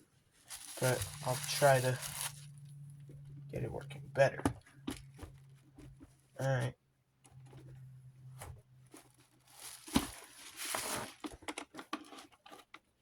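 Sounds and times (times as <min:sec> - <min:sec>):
crinkling rustle: 0:00.3 - 0:02.6, 0:08.9 - 0:12.7.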